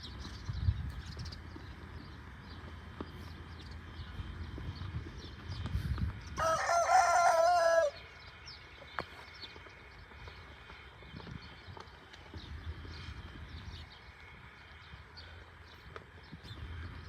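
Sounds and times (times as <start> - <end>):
rooster crowing: 6.4 - 8.0.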